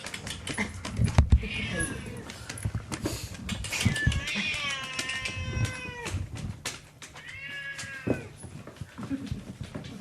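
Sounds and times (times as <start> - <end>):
cat meowing: 3.8 - 6.3, 7.2 - 8.4.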